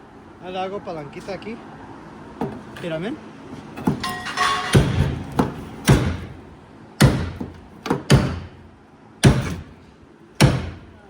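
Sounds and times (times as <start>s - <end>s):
heavy knocks on metal car body: 3.8s - 9.8s, 10.4s - 11.0s.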